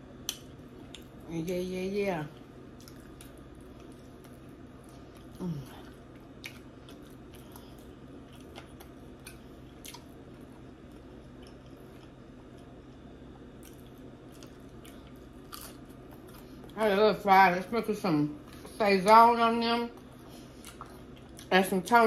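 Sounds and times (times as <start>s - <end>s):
chewing with wet mouth clicks: 0.2s - 1.2s, 2.3s - 16.8s, 19.9s - 21.7s.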